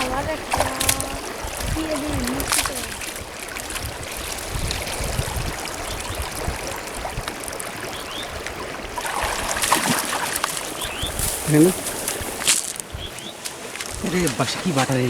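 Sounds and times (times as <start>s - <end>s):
water trickling and splashing: 0.0s - 15.0s.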